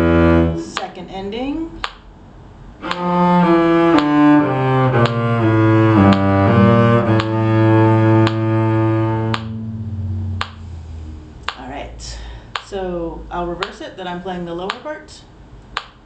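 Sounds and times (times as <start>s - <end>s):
cello slow melody: 0.0s - 0.8s, 2.8s - 11.6s
metronome clicking: 2.8s - 10.7s.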